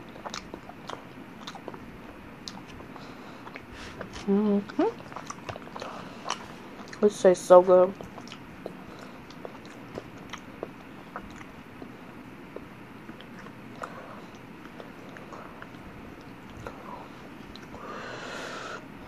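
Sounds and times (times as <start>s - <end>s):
person chewing food: 0.0s - 7.1s, 7.9s - 18.8s
breathy hiss: 16.7s - 19.0s.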